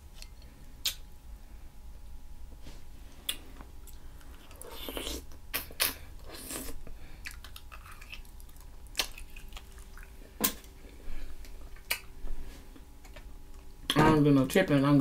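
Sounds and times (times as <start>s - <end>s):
person chewing with wet smacks: 0.2s - 1.0s, 3.1s - 14.0s.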